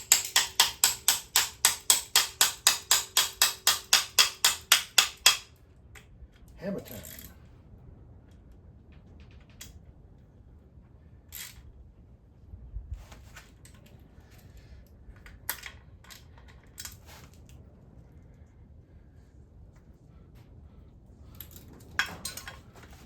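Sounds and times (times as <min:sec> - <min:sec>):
metallic clicks of hand tools: 0:00.0 - 0:06.1.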